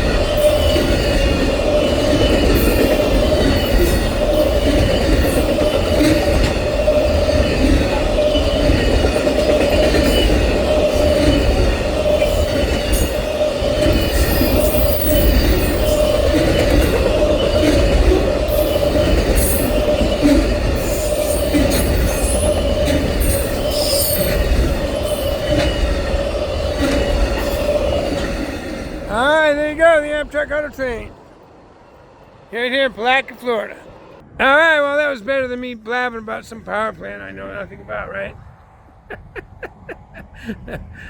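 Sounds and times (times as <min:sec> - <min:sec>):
high wheel squeal: 0:00.0 - 0:29.2
train wheels rumbling on rails: 0:00.0 - 0:41.0.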